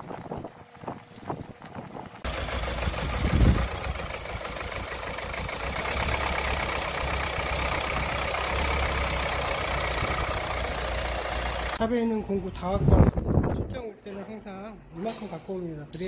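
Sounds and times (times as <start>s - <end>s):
car engine idling: 2.2s - 11.8s.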